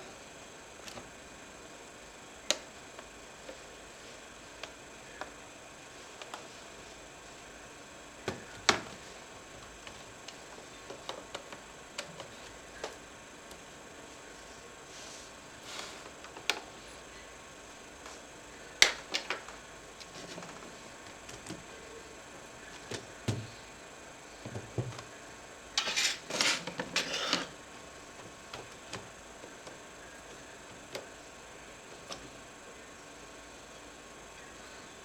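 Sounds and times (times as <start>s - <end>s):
scraping and rattling: 25.8s - 28.9s.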